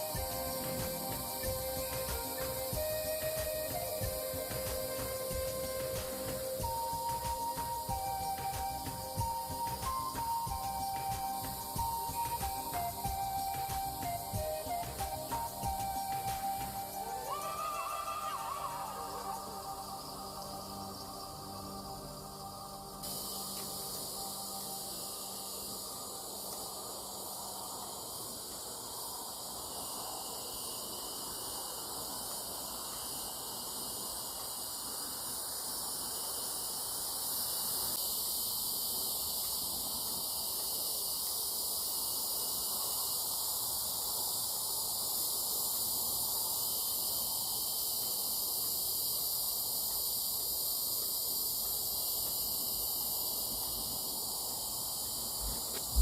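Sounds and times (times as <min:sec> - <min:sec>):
insects chorus: 0:00.0 - 0:56.0.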